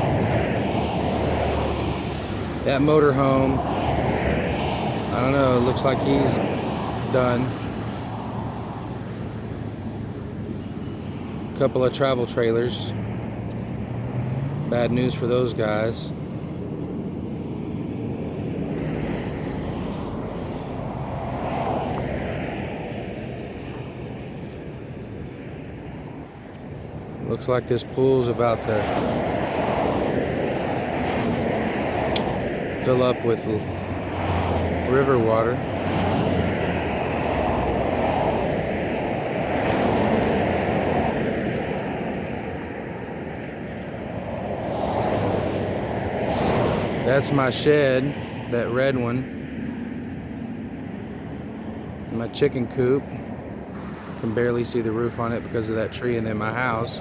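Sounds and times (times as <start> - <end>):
vehicle passing by: 0.0 - 10.1, 12.6 - 16.3, 16.9 - 24.8, 26.9 - 49.9
wind buffeting microphone: 0.0 - 57.0.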